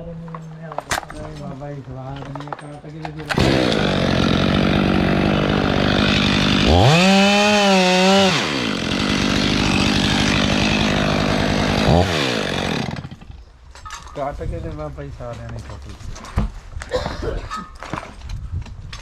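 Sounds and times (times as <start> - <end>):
chainsaw cutting at full throttle: 3.3 - 13.3.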